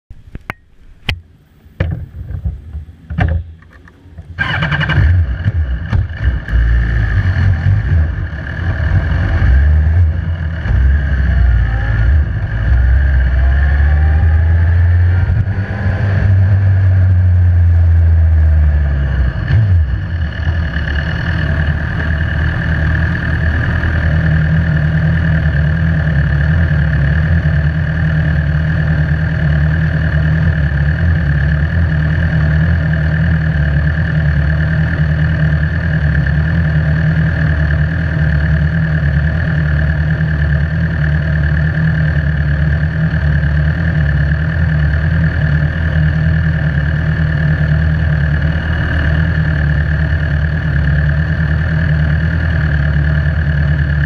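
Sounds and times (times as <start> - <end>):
motorcycle engine running: 0.1 - 54.0
sharp knocks and clicks: 0.3 - 4.3.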